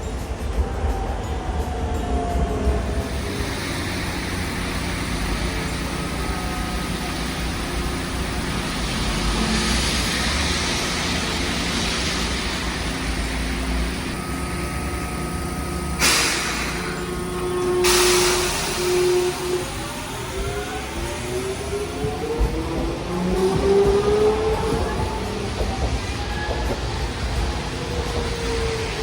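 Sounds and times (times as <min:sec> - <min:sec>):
steady whine: 0:00.0 - 0:25.7
tram and traffic rumble: 0:00.0 - 0:29.0
hiss of wet road: 0:03.0 - 0:22.1
short air hisses: 0:15.8 - 0:19.7.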